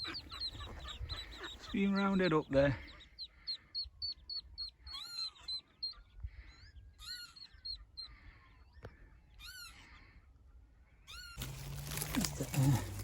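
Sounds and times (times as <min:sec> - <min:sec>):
ducklings peeping: 0:00.0 - 0:10.2.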